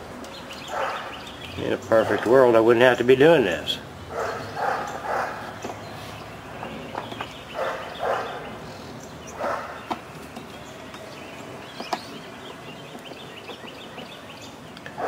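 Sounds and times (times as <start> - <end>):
dog barking: 0.7 - 1.1, 4.1 - 5.6, 7.6 - 8.4, 9.4 - 9.8.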